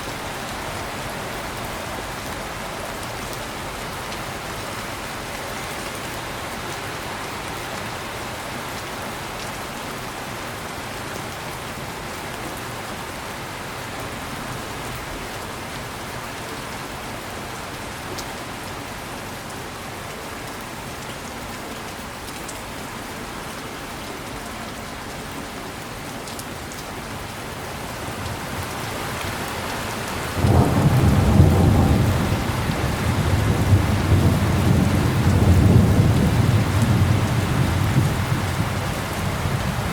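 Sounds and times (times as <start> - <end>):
heavy rain falling: 0.0 - 39.9
deep rolling thunder: 30.3 - 39.9.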